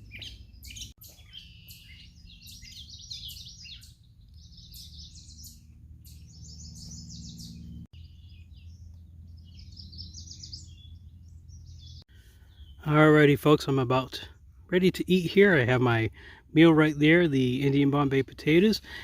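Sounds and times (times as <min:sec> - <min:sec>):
birds chirping: 0:00.0 - 0:19.0
steady low hum: 0:01.8 - 0:12.7.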